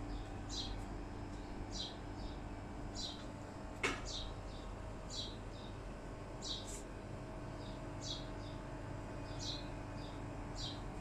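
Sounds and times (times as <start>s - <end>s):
low background hum: 0.0s - 11.0s
bird chirping: 0.1s - 0.8s, 1.4s - 3.2s, 4.0s - 5.8s, 6.4s - 6.7s, 7.6s - 8.6s, 9.2s - 10.8s.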